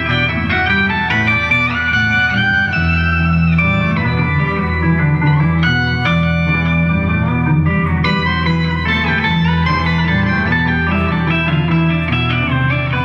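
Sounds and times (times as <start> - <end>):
bass: 0.0 - 13.0
electric guitar sliding notes: 0.0 - 13.0.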